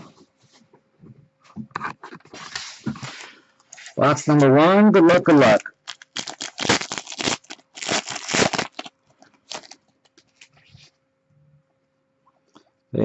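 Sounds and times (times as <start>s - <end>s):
plastic wrapping tearing and crinkling: 5.4s - 10.6s.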